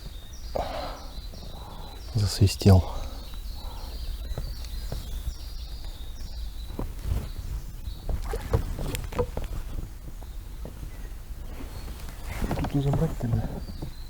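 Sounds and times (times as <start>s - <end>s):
knocks and handling noises: 8.1s - 9.8s.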